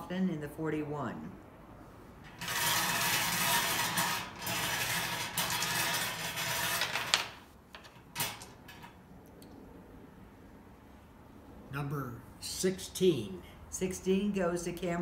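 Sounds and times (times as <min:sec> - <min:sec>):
draw balls rattling: 0:02.3 - 0:09.0.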